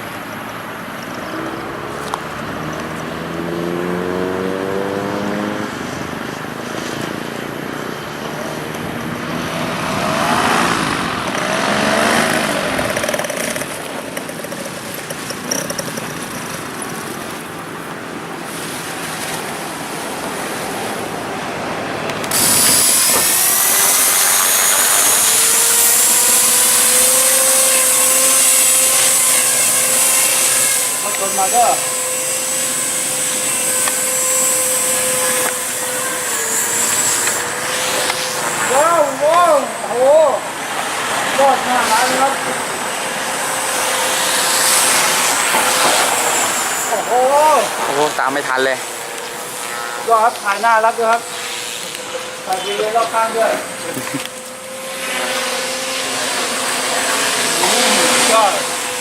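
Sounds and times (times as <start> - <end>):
model airplane motor flying overhead: 0.0 - 59.0
steady high whine: 4.4 - 59.0.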